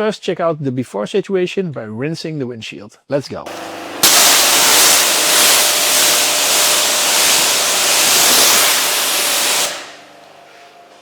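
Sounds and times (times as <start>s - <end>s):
water spraying on windshield: 4.0s - 9.7s.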